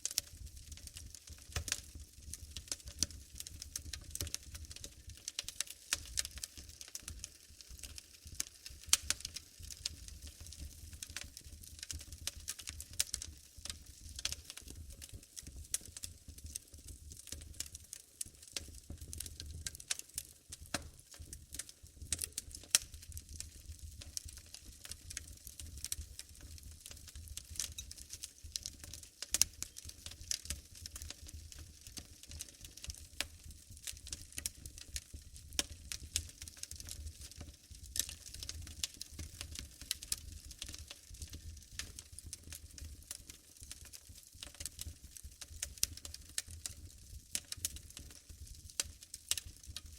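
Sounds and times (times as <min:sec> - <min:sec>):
wood fire crackling: 0:00.0 - 0:49.9.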